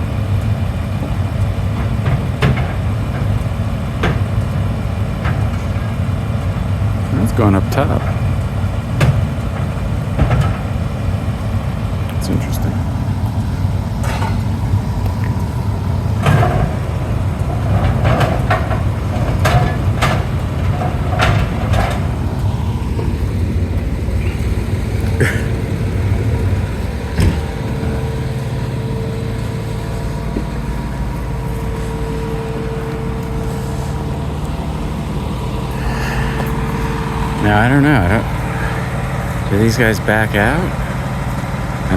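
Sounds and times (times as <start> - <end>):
diesel engine idling: 0.0 - 41.9
sharp clanks: 13.3 - 41.0.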